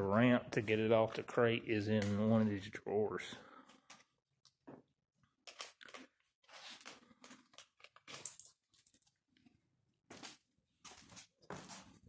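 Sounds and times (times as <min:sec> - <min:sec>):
packaging crinkling and rustling: 0:05.5 - 0:09.1.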